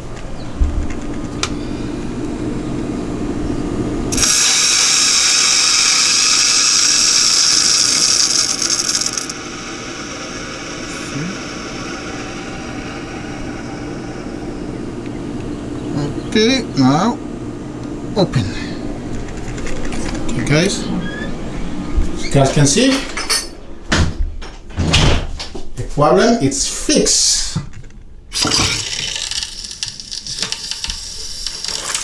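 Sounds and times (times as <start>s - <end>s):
low hum: 0.0s - 22.3s
water rushing through pipes: 4.1s - 15.4s, 28.3s - 32.0s.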